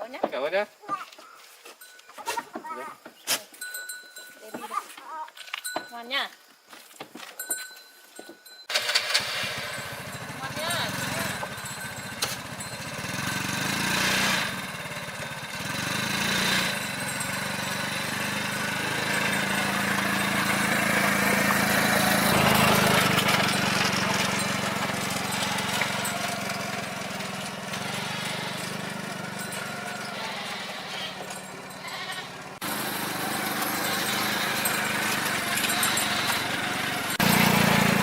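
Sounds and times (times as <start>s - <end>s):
vehicle engine humming: 8.7s - 38.0s
goats bleating: 27.7s - 32.3s, 35.5s - 36.8s.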